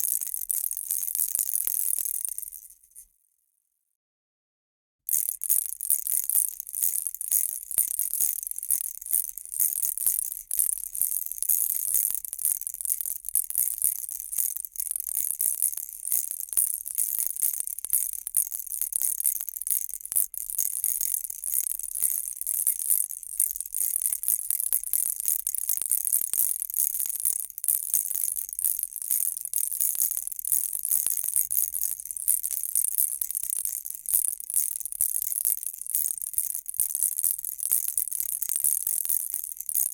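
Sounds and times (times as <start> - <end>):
baby rattle shaking: 5.1 - 11.1.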